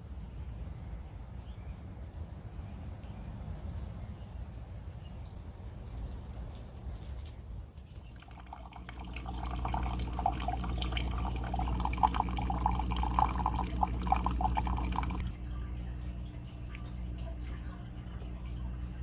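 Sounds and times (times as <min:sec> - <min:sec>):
steady low hum: 0:07.8 - 0:19.0
tap water running and splashing: 0:07.9 - 0:19.0.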